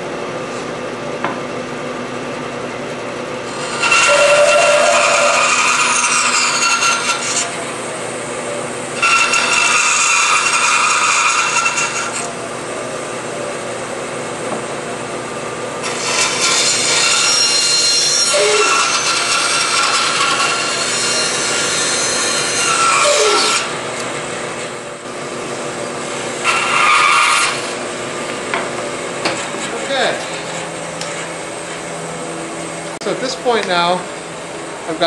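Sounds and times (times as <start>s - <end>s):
bandsaw cutting wood: 3.5s - 7.7s, 9.0s - 12.3s, 15.8s - 23.8s, 26.4s - 27.8s, 29.2s - 31.4s.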